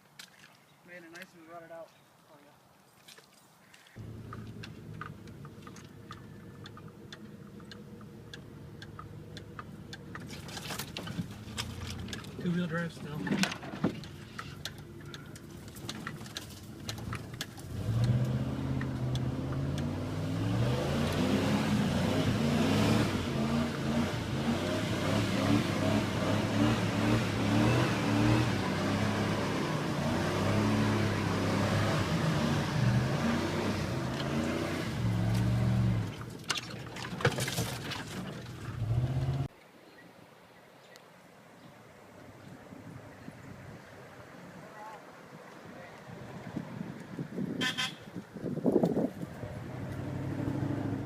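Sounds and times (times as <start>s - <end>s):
truck engine revving in mud: 16.9s - 36.3s, 38.1s - 39.5s, 49.3s - 51.0s.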